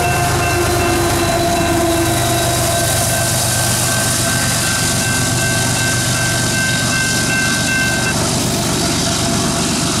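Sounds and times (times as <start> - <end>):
crossing warning bell ringing: 0.0 - 10.0
freight train rumbling: 0.0 - 10.0
wheels rushing on rail: 0.0 - 10.0.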